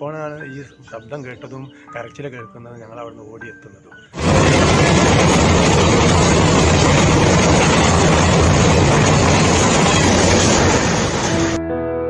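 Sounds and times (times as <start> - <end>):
train wheels clattering on rails: 4.2 - 11.6.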